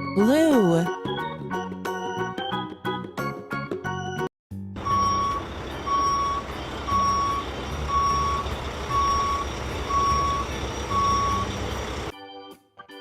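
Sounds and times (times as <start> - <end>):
truck engine rumble: 4.7 - 12.1
truck reversing alarm beeping: 4.8 - 12.1.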